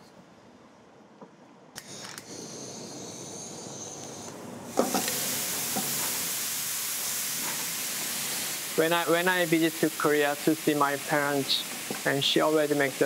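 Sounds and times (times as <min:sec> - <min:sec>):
gas burner hissing: 0:01.8 - 0:13.0
meat sizzling in a frying pan: 0:04.7 - 0:13.0.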